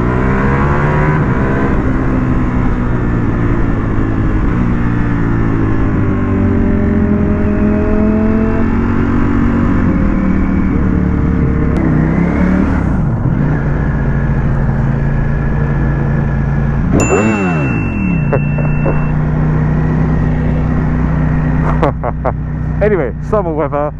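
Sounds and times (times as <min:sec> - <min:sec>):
motorcycle engine running: 0:13.5 - 0:23.9.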